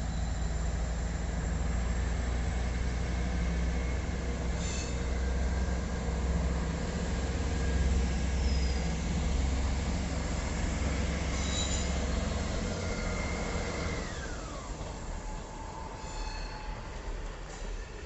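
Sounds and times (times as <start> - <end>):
train wheels squealing: 0.0 - 1.6, 4.5 - 5.8, 7.6 - 9.0, 11.2 - 18.0
train engine rumble: 0.0 - 18.0.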